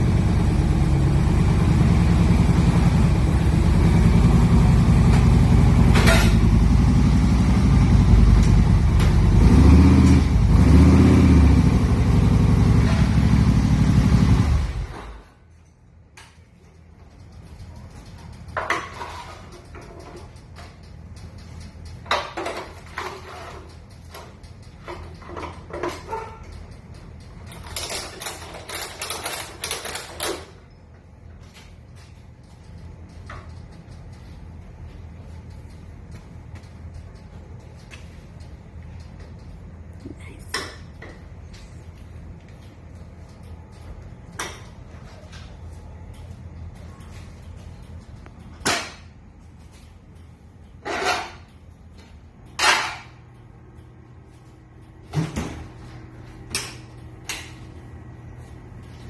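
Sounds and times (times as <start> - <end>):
motorcycle engine running: 0.0 - 15.0
sharp clicks and clunks: 14.8 - 59.0.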